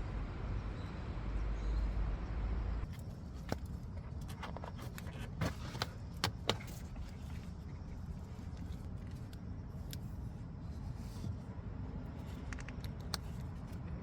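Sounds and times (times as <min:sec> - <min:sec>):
low steady rumble: 0:00.0 - 0:14.0
parts clicking when handled: 0:12.3 - 0:14.0.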